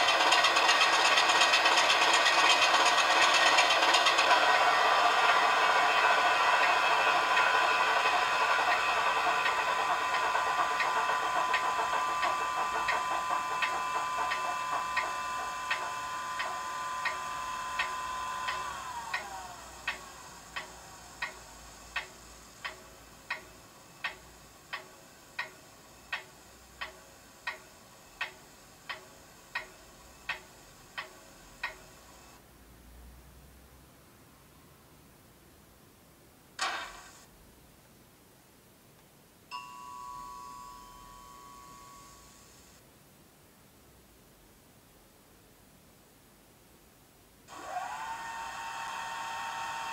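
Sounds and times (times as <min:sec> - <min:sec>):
sharp ticking: 0:19.9 - 0:31.8.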